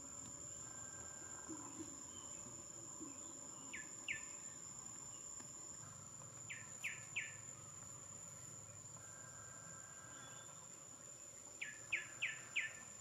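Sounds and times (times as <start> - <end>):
high-pitched insect trill: 0.0 - 13.0.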